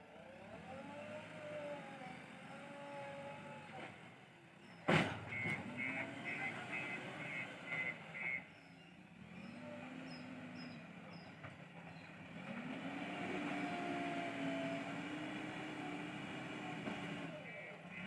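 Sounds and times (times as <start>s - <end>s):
diesel engine working: 0.0s - 18.0s
reversing beeper: 5.3s - 8.5s.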